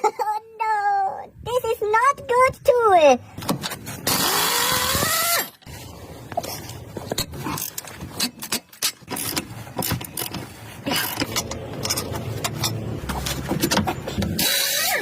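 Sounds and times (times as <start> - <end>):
clicks and clatter of car repair: 3.4 - 3.8, 6.3 - 15.0.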